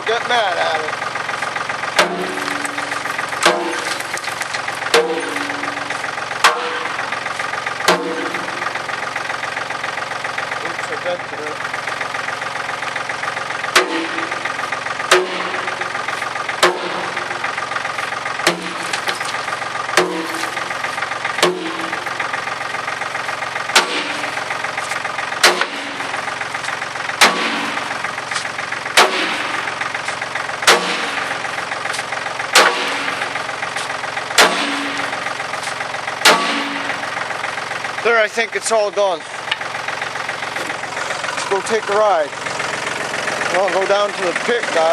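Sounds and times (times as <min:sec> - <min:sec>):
tractor diesel engine running: 0:00.0 - 0:44.9
sledgehammer striking steel bucket: 0:02.0 - 0:07.2, 0:07.9 - 0:08.8, 0:13.7 - 0:14.5, 0:15.1 - 0:17.4, 0:18.4 - 0:20.7, 0:21.4 - 0:22.2, 0:23.7 - 0:24.5, 0:25.4 - 0:26.3, 0:27.2 - 0:33.4, 0:34.3 - 0:37.0.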